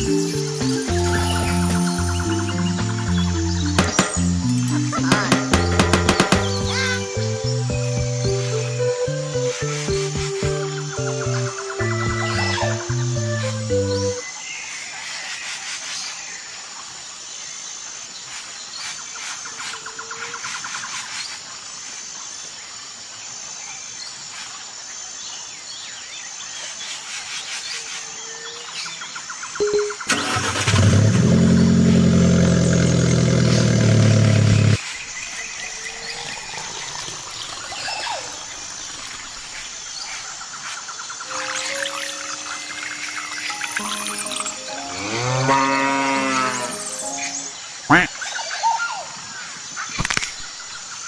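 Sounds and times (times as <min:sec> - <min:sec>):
birds chirping: 0:00.0 - 0:15.2, 0:28.6 - 0:51.0
loud motor humming: 0:30.1 - 0:34.8.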